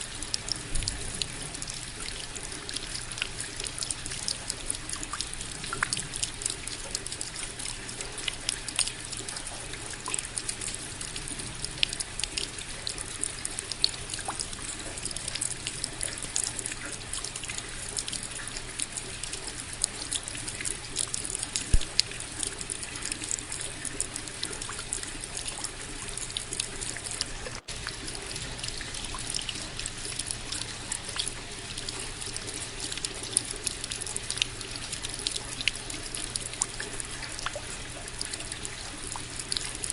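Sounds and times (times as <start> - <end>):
rain drops ticking: 0.0 - 39.9
water trickling: 0.0 - 39.9.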